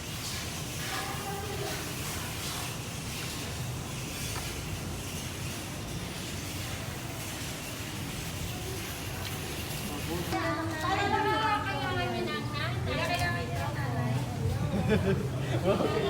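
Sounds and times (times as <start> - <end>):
hiss: 0.0 - 5.3.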